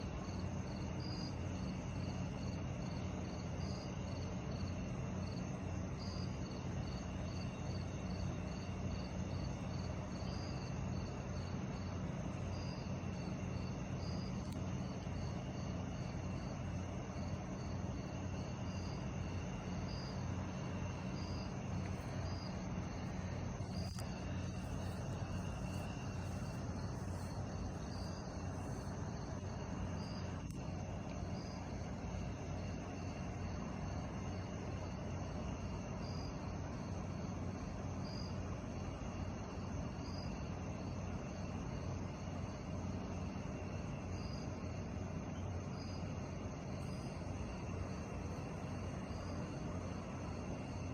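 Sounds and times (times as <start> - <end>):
crickets chirping: 0.0 - 50.9
low hum: 5.9 - 34.2.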